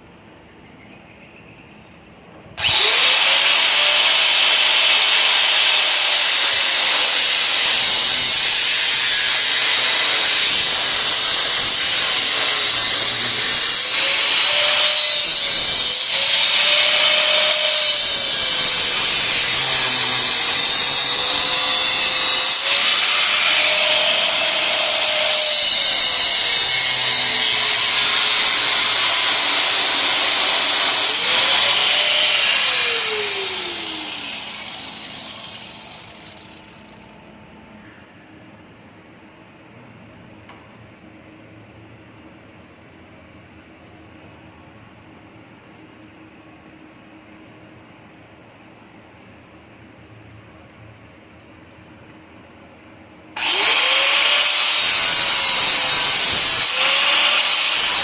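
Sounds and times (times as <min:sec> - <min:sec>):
electric grinder on metal: 0:02.6 - 0:36.8, 0:53.4 - 0:58.0.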